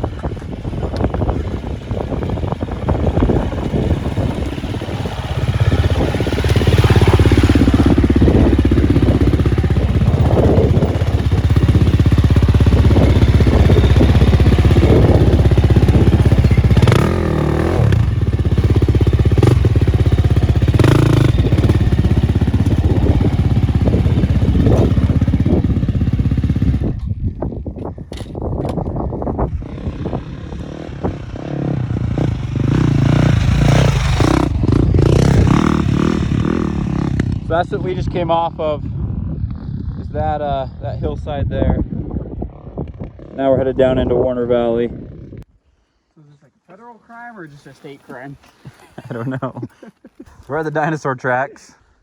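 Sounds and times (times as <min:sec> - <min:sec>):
dirt bike engine revving: 0:00.0 - 0:27.0, 0:29.4 - 0:38.6
bike rattling over rough ground: 0:00.0 - 0:40.0.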